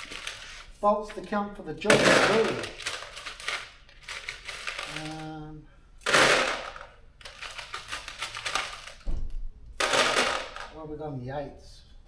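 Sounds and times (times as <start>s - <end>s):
rattling pour of bolts: 0.0s - 0.6s, 1.8s - 5.4s, 6.0s - 9.0s, 9.8s - 10.8s.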